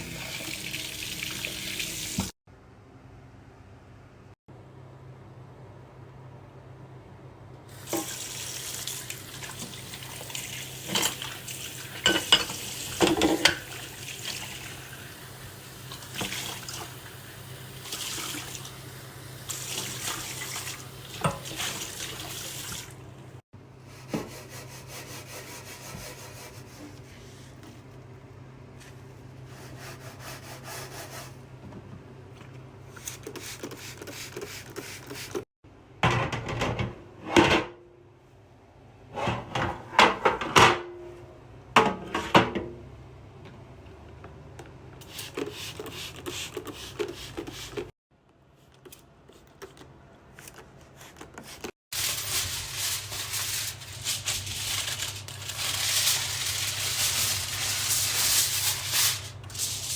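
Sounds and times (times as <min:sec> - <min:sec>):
dishes and utensils clattering: 0:12.0 - 0:13.8.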